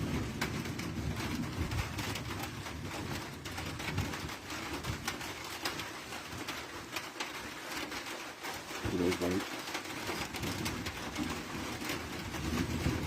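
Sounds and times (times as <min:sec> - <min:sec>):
distant thunder rumbling: 0:00.0 - 0:04.3, 0:10.3 - 0:13.0.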